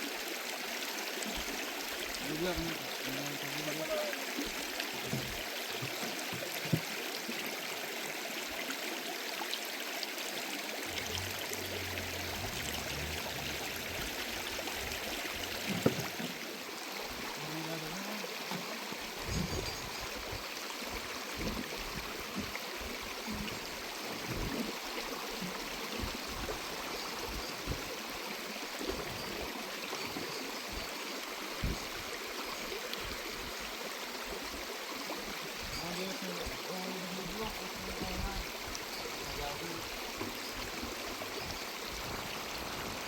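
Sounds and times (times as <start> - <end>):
stream water rushing: 0.0 - 43.0.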